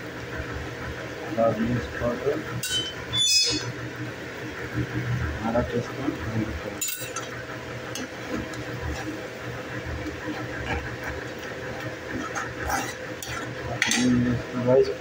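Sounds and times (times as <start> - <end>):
steel spoon scraping a pan: 8.3 - 9.2, 10.3 - 14.1.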